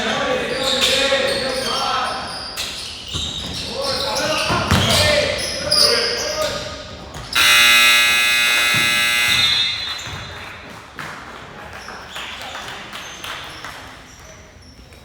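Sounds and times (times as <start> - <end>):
scoreboard buzzer: 7.4 - 10.0.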